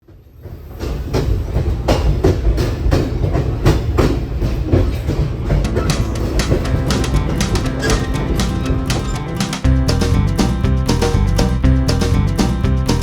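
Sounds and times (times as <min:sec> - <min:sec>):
train rumbling on track: 0:00.1 - 0:10.0
wheel clicks over rail joints: 0:05.1 - 0:09.7.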